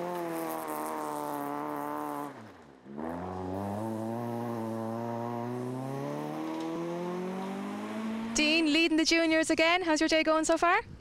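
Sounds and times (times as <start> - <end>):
rally car engine revving: 0.0 - 8.4.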